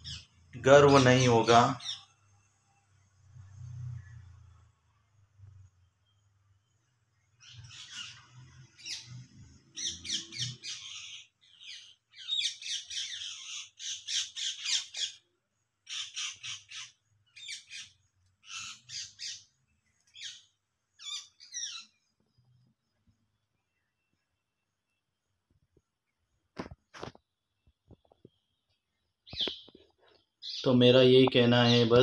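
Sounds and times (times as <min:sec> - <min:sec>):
birds calling in noisy bursts: 0:00.0 - 0:02.2, 0:07.3 - 0:22.1.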